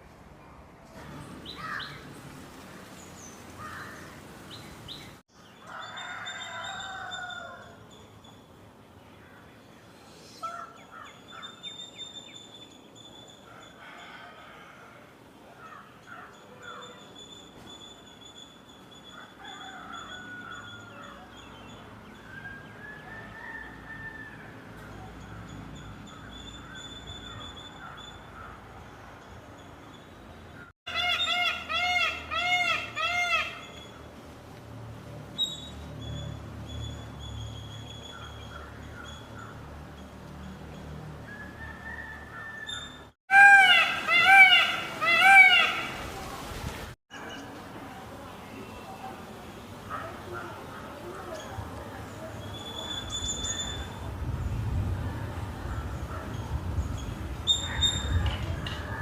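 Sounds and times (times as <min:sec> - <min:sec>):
birds chirping: 0:01.1 - 0:13.8
peafowl calling: 0:30.9 - 0:33.9, 0:41.6 - 0:46.2.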